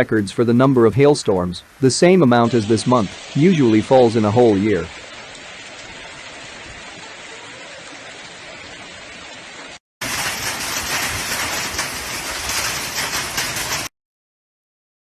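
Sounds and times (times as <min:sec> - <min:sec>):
hail and heavy rain pelting: 0:10.0 - 0:13.9.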